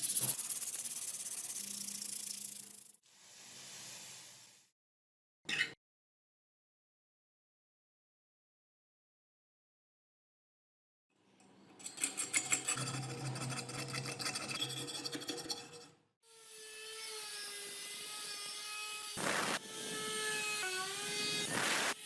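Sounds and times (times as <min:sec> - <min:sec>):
short hissing bursts: 0:00.0 - 0:04.7
small power tool whining: 0:16.3 - 0:22.0.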